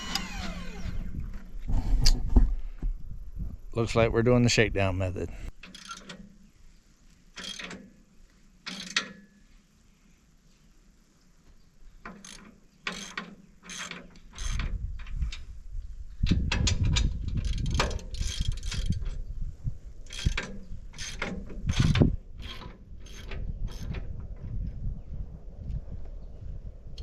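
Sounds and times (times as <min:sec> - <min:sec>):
ratchet wrench clicking: 0:12.2 - 0:14.6.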